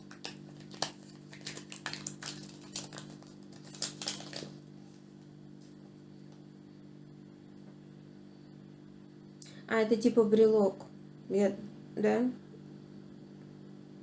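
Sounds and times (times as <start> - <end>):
toy packaging clicks and rustles: 0.0 - 4.6
steady low hum: 0.0 - 14.0.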